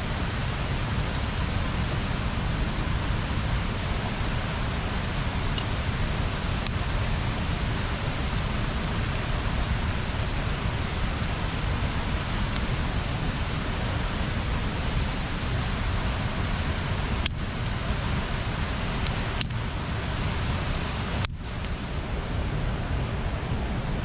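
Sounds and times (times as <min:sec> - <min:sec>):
fire crackles: 0:00.0 - 0:22.7.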